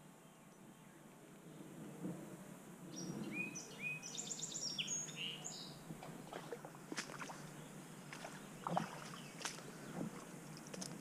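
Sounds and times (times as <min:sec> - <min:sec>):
small creek rushing: 0:05.8 - 0:11.0.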